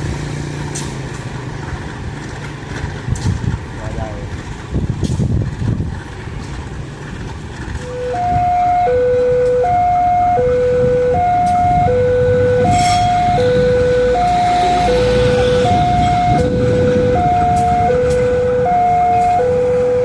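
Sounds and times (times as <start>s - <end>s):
steady low rumble: 0.0s - 20.0s
two-tone crossing alarm: 7.8s - 20.0s.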